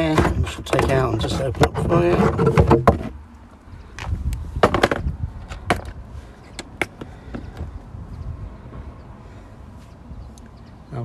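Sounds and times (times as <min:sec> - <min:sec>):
tool kit clicks and knocks: 0:00.0 - 0:03.2, 0:04.0 - 0:06.0, 0:06.6 - 0:07.7.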